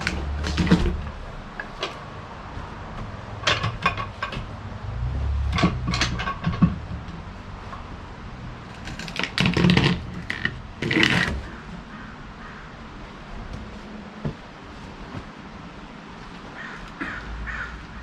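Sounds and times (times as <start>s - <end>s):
clattering knocks: 0.0s - 12.1s.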